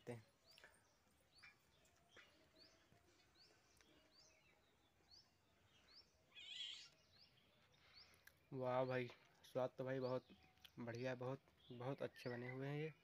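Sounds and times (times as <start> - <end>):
short rising bird chirp: 5.8 - 8.2
warbling bird call: 6.3 - 7.0.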